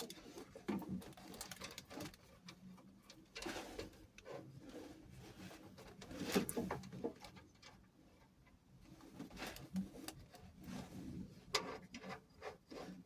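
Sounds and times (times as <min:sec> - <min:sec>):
small clicks and rustling: 0:00.0 - 0:12.8.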